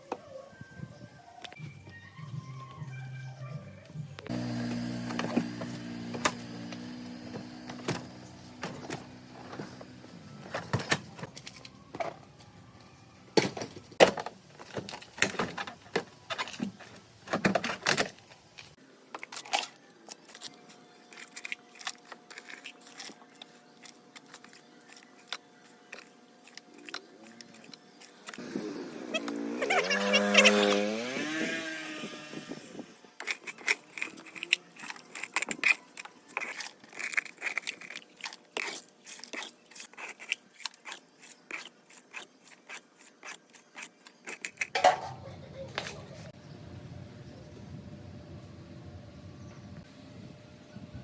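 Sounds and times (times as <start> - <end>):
power tool whine: 4.3 - 10.3, 28.4 - 33.0.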